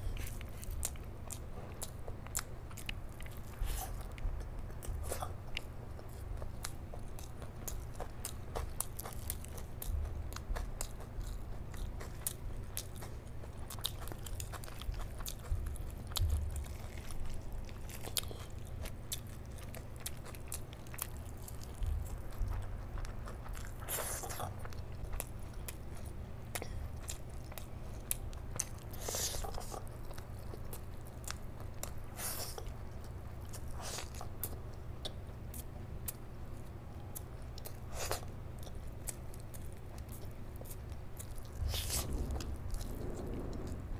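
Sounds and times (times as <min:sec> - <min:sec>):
person chewing food: 0:00.0 - 0:43.9.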